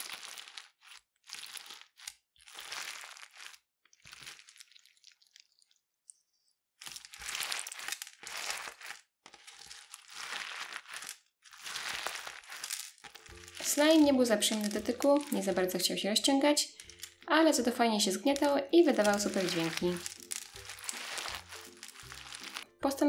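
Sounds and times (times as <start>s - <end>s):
slime crackling and crunching: 0.0s - 23.0s.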